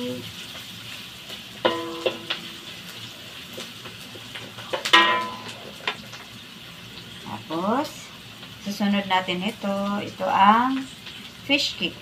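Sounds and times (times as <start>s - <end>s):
onion and garlic sizzling: 0.0s - 12.0s
spatula clacking in metal wok: 1.6s - 2.6s, 4.7s - 6.0s.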